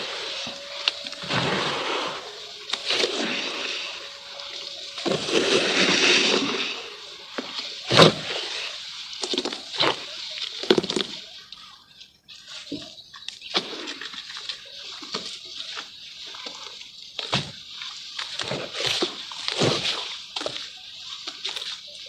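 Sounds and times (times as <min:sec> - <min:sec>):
water sloshing and splashing: 0:00.0 - 0:11.2.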